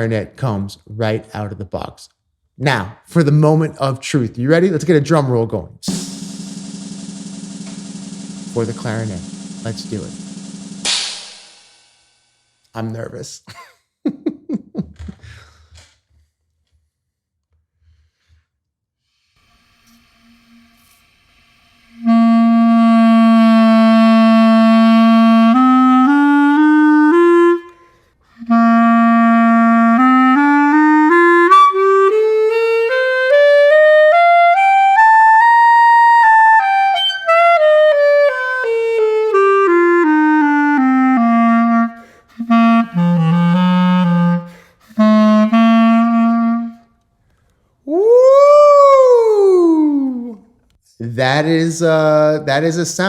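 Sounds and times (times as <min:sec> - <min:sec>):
squeaky clarinet playing: 0:21.8 - 0:46.9.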